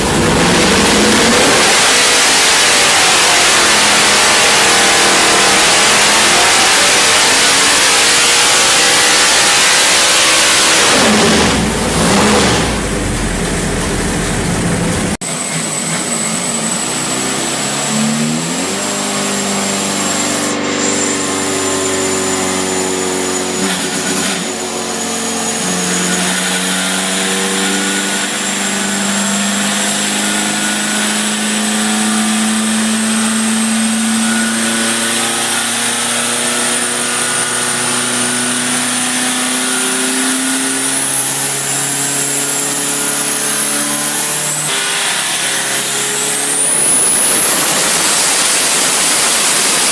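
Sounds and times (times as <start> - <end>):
engine running loud and rough: 0.0 - 49.9
engine running steadily: 10.9 - 16.2.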